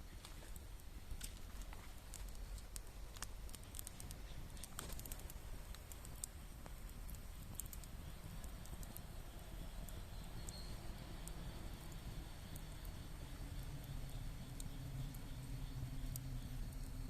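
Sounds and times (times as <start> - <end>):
sharp clicks and ticks: 0.5 - 17.0
low steady rumble: 5.3 - 17.0.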